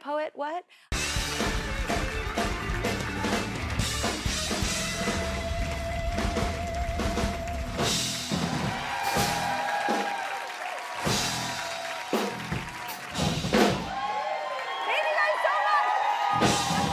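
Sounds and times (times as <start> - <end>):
steady drum beat: 0.9 - 10.3, 10.9 - 14.0, 16.3 - 16.9
band music: 0.9 - 14.0, 16.2 - 16.9.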